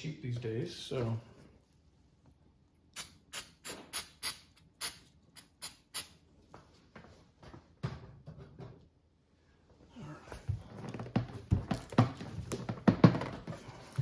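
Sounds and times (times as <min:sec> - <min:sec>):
spray bottle hissing: 0:03.0 - 0:06.2.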